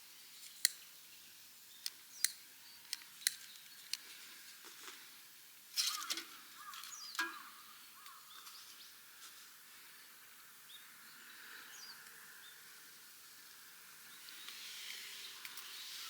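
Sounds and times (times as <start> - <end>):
birds chirping: 5.8 - 9.0.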